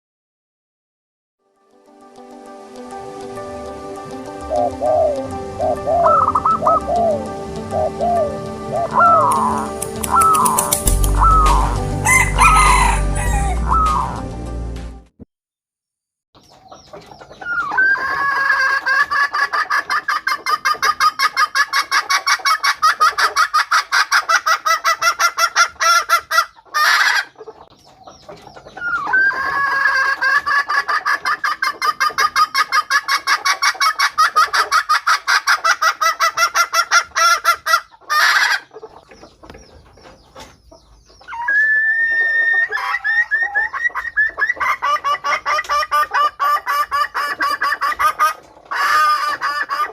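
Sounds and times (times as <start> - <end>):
hen cackling: 4.1 - 14.2, 17.2 - 27.7, 28.5 - 39.3, 41.1 - 49.9.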